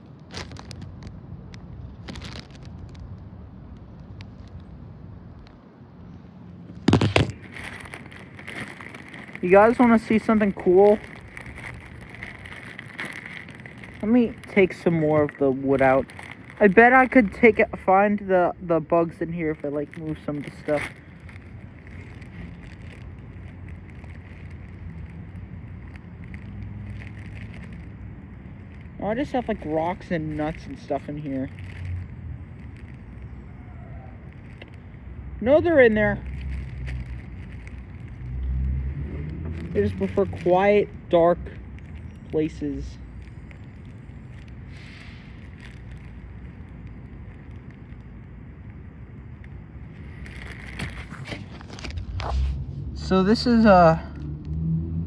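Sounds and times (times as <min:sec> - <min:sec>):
steady low rumble: 0:00.0 - 0:54.6
wood and dirt rustling in bag: 0:00.1 - 0:03.2, 0:06.6 - 0:53.8
wood and rocks clicking: 0:00.1 - 0:04.7, 0:06.7 - 0:17.8, 0:19.5 - 0:33.4.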